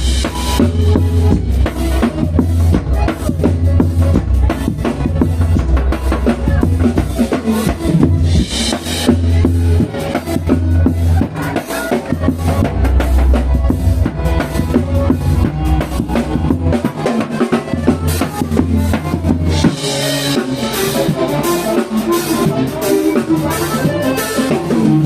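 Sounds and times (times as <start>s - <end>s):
drum kit beat: 0.0s - 25.0s
held bass line: 0.0s - 25.0s.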